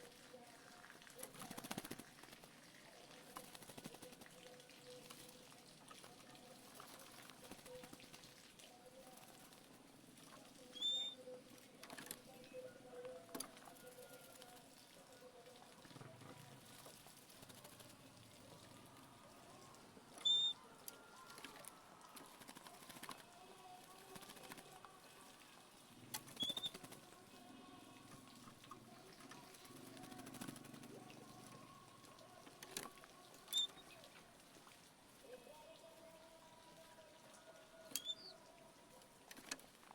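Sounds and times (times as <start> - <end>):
bird chirp: 10.7 - 11.2, 20.2 - 20.6, 26.3 - 26.8, 33.5 - 34.0, 38.0 - 38.4.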